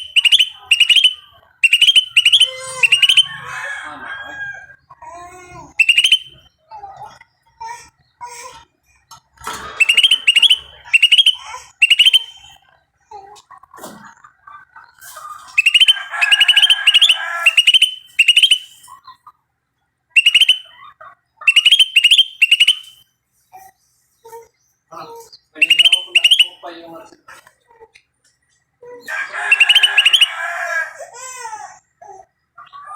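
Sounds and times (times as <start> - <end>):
bird chattering: 0.0 - 3.4, 5.7 - 6.4, 9.6 - 12.6, 15.5 - 18.9, 20.2 - 20.8, 21.4 - 23.0, 25.0 - 27.0, 29.4 - 30.4
birds calling high-pitched notes: 0.0 - 3.5, 5.7 - 6.7, 9.6 - 12.6, 15.5 - 19.0, 20.2 - 20.8, 21.4 - 23.1, 24.2 - 27.0, 29.4 - 30.6.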